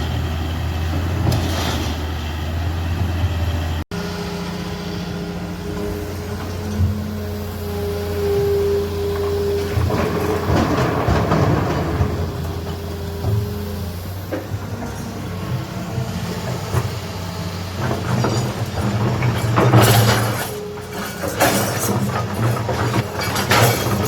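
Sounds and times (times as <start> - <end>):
diesel machinery droning: 0.0 - 24.0
rattling and clattering: 9.2 - 17.0, 17.8 - 24.0.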